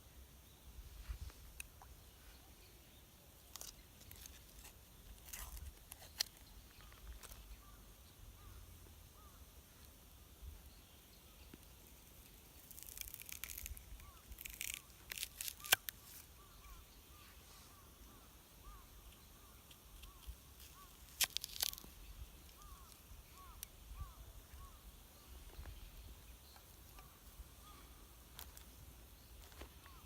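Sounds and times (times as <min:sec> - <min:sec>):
dry wood snapping and crackling: 0:03.5 - 0:07.5, 0:12.5 - 0:16.3, 0:19.7 - 0:23.7, 0:28.3 - 0:28.7.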